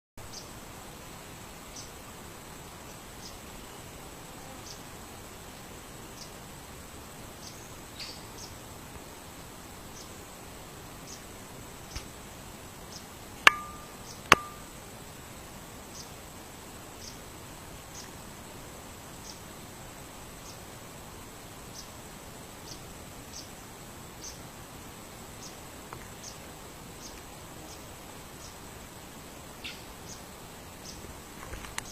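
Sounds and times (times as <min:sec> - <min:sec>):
steady hiss: 0:00.2 - 0:31.9
bird chirping: 0:12.9 - 0:14.7
faint high whine: 0:13.4 - 0:14.9.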